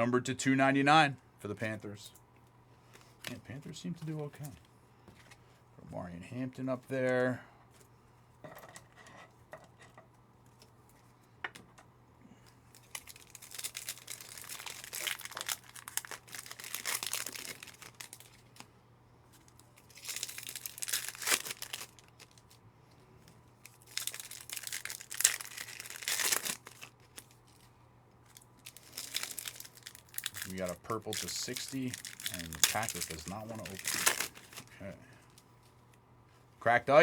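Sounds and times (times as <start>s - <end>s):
foil packs tearing and crinkling: 12.8s - 18.7s, 19.4s - 22.6s, 23.6s - 27.7s, 28.3s - 35.0s.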